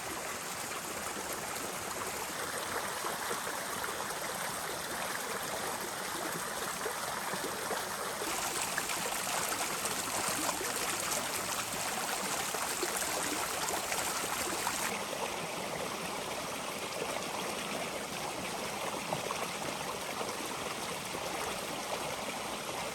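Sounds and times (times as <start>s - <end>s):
floodwater rushing: 8.2s - 15.0s.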